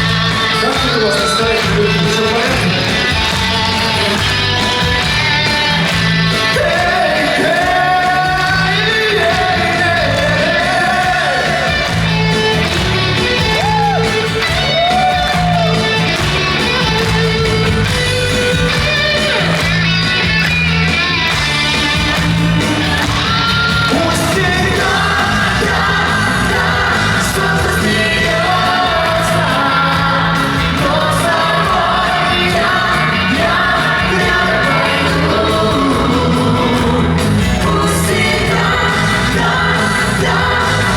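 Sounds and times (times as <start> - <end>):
pop-rock band playing: 0.0 - 40.9
man singing: 0.3 - 4.2, 6.3 - 12.1, 23.9 - 40.9.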